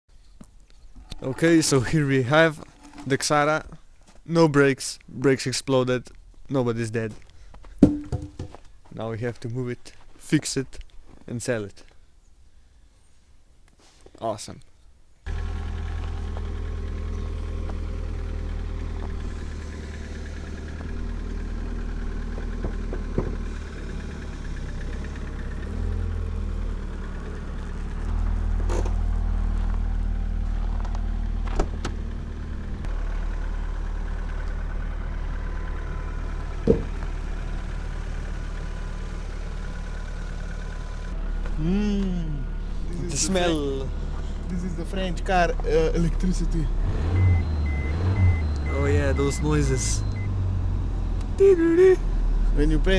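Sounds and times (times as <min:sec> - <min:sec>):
short knocks or clicks: 0:07.8 - 0:08.6
car engine idling: 0:15.3 - 0:52.9.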